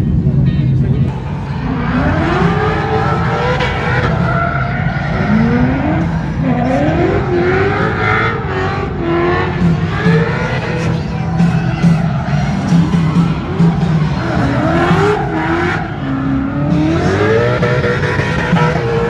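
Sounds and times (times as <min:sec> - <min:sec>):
car engines revving hard: 0:00.0 - 0:19.0
tire squeal: 0:01.1 - 0:19.0.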